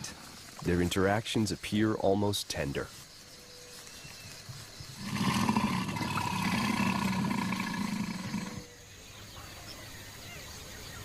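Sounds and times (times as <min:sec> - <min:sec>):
crocodile growling: 0:05.0 - 0:08.6.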